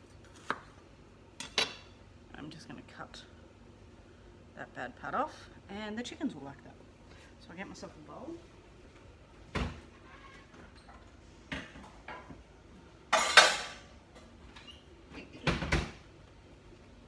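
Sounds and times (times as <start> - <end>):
bowls and dishes clattering: 13.2 - 13.9.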